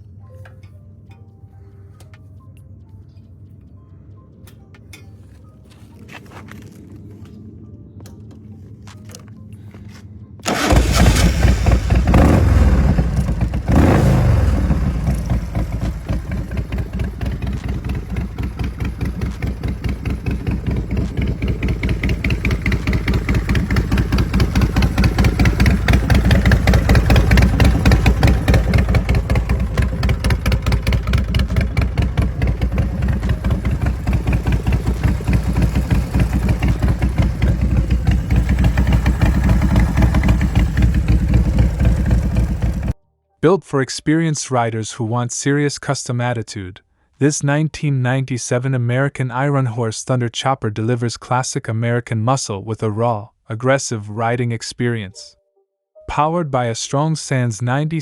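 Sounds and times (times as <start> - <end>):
motorcycle engine revving: 10.4 - 43.0
motorcycle engine starting and idling: 10.4 - 43.0.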